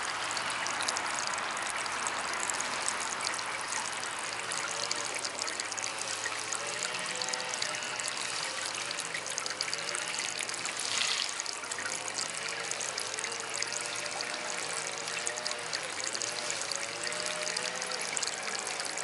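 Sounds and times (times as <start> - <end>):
water fountain trickling: 0.0 - 19.0.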